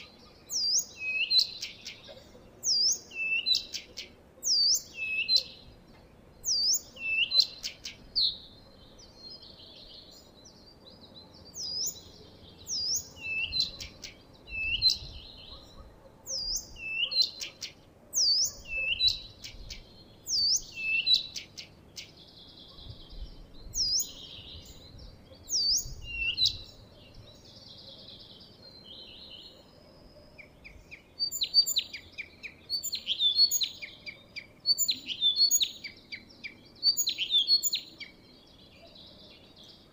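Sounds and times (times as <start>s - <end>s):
songbird whistled notes: 2.7s - 3.8s, 20.3s - 21.4s, 25.5s - 26.7s.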